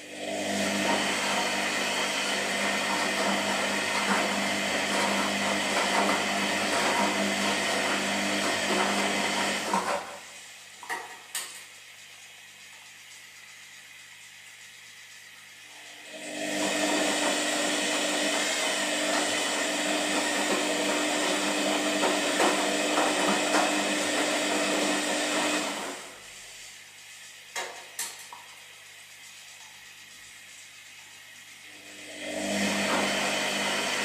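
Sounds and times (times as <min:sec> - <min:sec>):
washing machine drum humming: 0:00.0 - 0:34.0.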